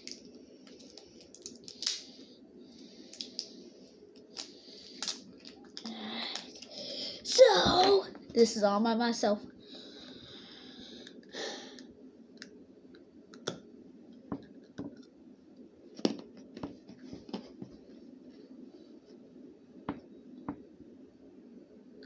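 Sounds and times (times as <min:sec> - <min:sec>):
person chewing hard candy: 0:00.0 - 0:02.1.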